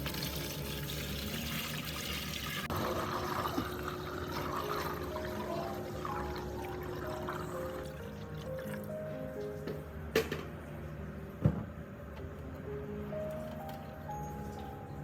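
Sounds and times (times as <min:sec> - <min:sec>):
liquid pouring and splashing: 0:00.0 - 0:08.9
soft background music: 0:00.0 - 0:15.0.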